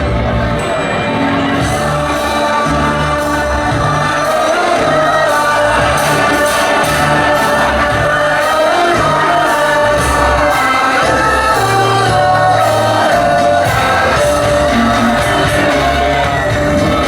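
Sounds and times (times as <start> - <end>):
bass line: 0.0 - 17.0
live rock band playing: 0.0 - 17.0
person singing: 0.0 - 17.0.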